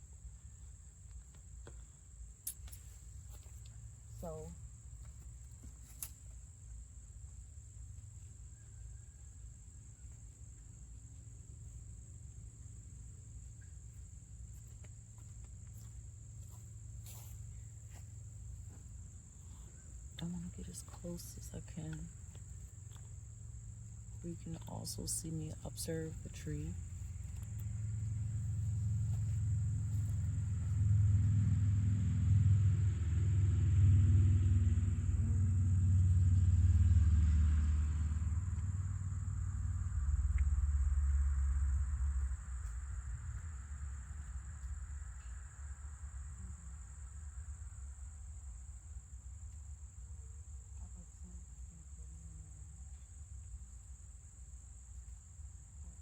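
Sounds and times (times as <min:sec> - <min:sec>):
insects trilling: 0:00.0 - 0:31.7
low rumble: 0:16.2 - 0:48.6.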